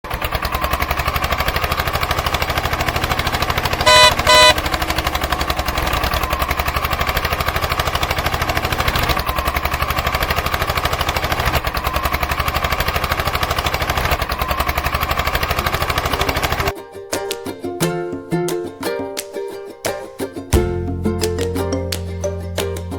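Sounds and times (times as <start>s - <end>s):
small tractor engine chugging: 0.0s - 16.8s
short horn beeps: 3.8s - 4.7s.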